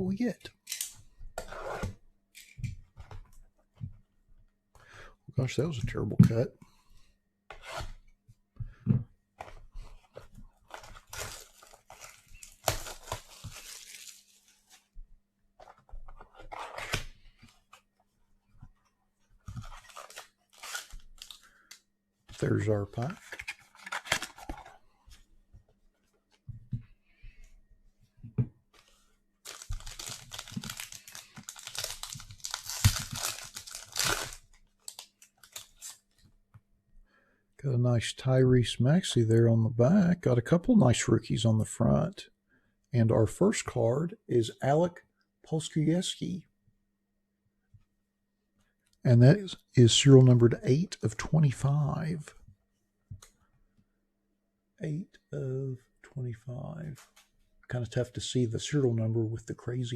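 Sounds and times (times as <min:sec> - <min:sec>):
packaging tearing and crinkling: 0:10.7 - 0:14.6, 0:19.7 - 0:21.4, 0:29.5 - 0:36.0.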